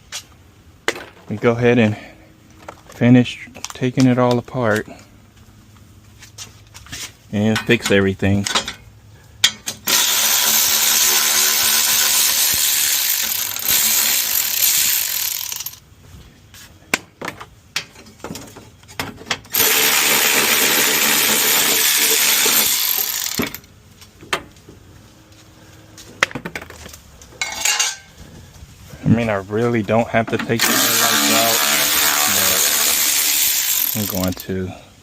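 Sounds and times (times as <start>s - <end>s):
cordless power driver running: 9.9s - 15.8s, 19.5s - 23.6s, 30.6s - 34.4s.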